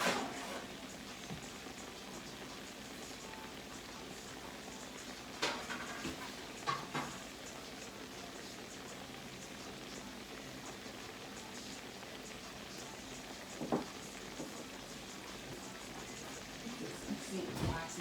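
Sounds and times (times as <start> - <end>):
oil sizzling in a frying pan: 0.0 - 18.0
cookware clinking and knocking: 5.4 - 7.2, 13.6 - 14.6.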